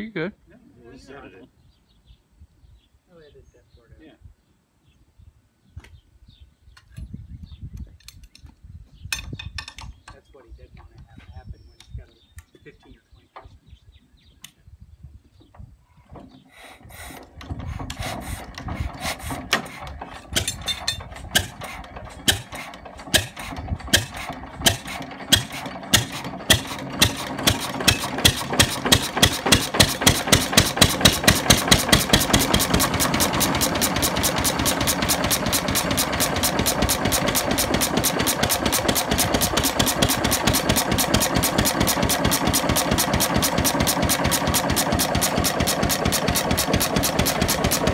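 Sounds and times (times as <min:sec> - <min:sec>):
engine firing and running: 0:16.9 - 0:47.9.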